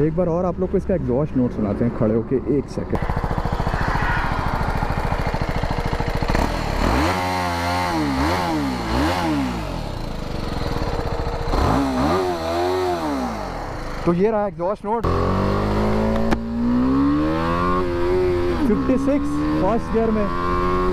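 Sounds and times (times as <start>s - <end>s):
motorcycle engine revving: 1.4s - 14.4s, 15.0s - 20.9s
motorcycle engine idling: 2.7s - 14.4s.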